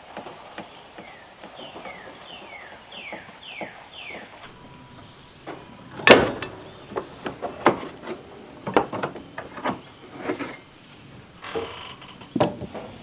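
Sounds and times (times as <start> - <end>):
tools and metal parts clattering: 4.5 - 13.0.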